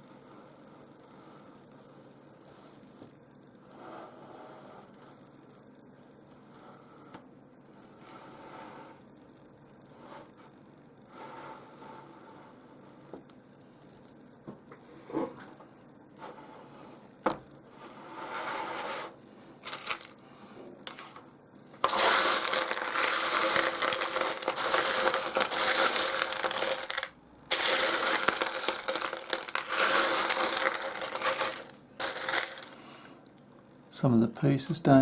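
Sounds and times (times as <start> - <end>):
stones clattering together: 21.8 - 32.8.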